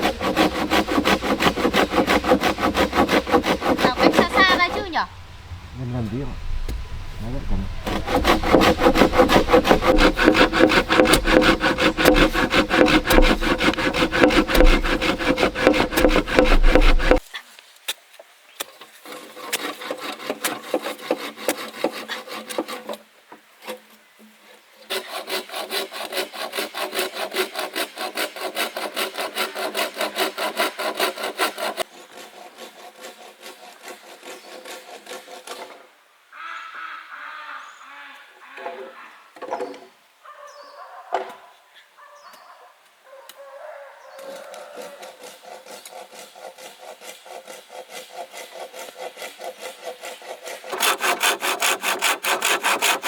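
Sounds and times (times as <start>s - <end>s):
hand saw cutting bamboo: 0.0s - 5.0s, 7.8s - 17.4s, 18.6s - 23.8s, 24.8s - 35.8s, 44.6s - 53.0s.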